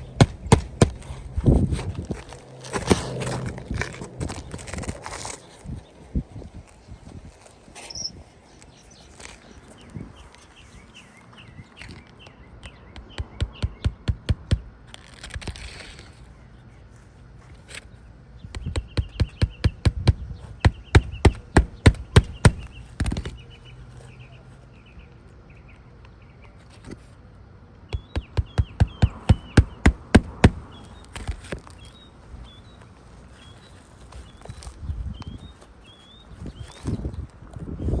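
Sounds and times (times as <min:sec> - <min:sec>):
hammer driving nails into shingles: 0:00.0 - 0:01.2, 0:18.6 - 0:23.3, 0:27.9 - 0:30.7
birds chirping faintly: 0:00.0 - 0:14.8, 0:15.8 - 0:37.9.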